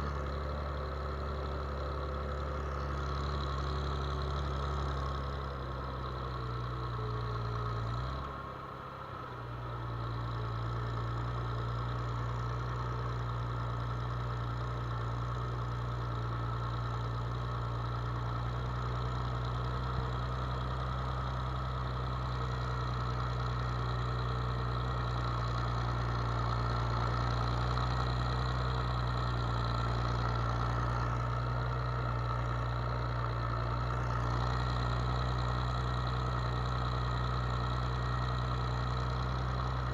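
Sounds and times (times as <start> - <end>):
farm machine engine running: 0.0 - 9.0, 18.7 - 39.9.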